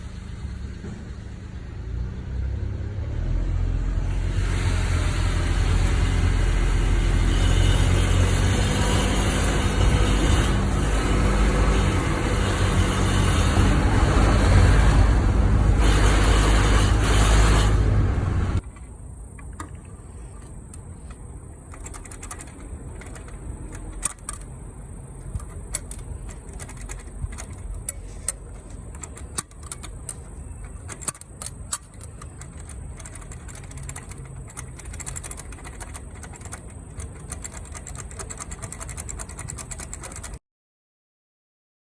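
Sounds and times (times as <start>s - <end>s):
car engine accelerating: 0.0s - 18.6s
low resonant engine drone: 0.0s - 39.3s
scattered ticks: 18.6s - 40.4s.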